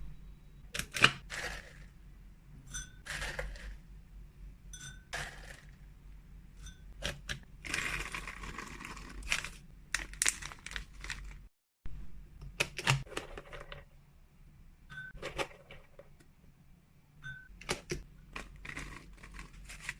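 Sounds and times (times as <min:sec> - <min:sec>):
dry treats clicking and clattering: 0:07.0 - 0:11.4, 0:17.6 - 0:19.9
plastic packaging crinkling: 0:07.7 - 0:11.4.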